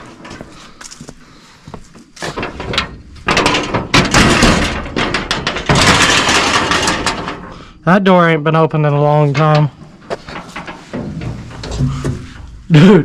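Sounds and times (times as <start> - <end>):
metal door scraping and banging: 2.2 - 7.7, 9.1 - 12.9.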